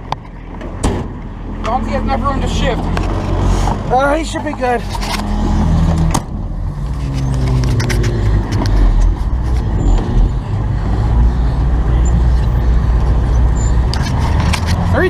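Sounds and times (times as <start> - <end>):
truck engine pulling away: 5.2 - 15.0.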